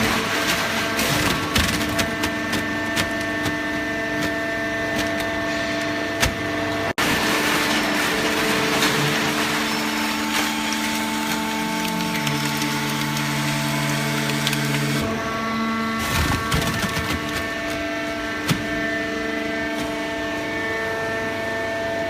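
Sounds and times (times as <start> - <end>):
hydraulic baler humming: 0.0 - 22.0
sharp clicks and cracks: 11.3 - 15.1.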